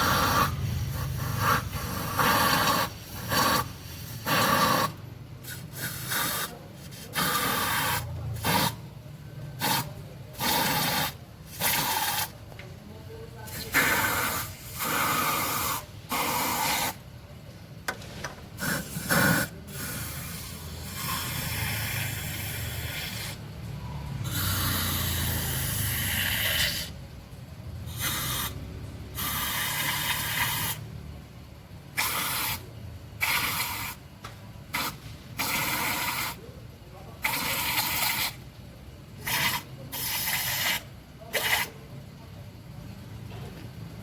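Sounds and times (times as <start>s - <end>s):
aerosol can spraying: 0.0s - 8.8s, 9.6s - 12.4s, 13.5s - 17.0s, 18.6s - 23.4s, 24.3s - 26.9s, 27.9s - 28.6s, 29.2s - 30.8s, 32.0s - 32.6s, 33.2s - 34.0s, 34.7s - 36.4s, 37.2s - 38.4s, 39.2s - 41.7s.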